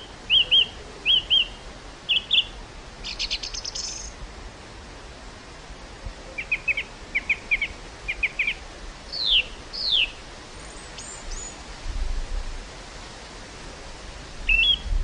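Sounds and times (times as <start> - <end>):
small birds chirping: 0.0 - 4.2, 6.3 - 11.6, 14.5 - 14.9
wind blowing: 0.0 - 15.0
wind gust on microphone: 4.1 - 15.0.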